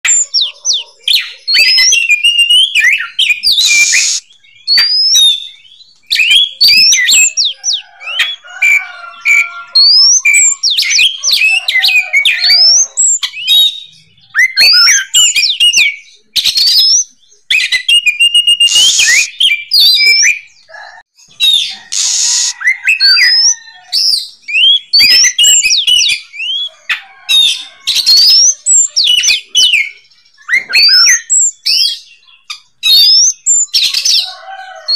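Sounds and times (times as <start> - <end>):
songbird whistling song: 0.0 - 34.4
harsh hissing bird notes: 3.5 - 4.2, 18.4 - 19.3, 21.7 - 22.6.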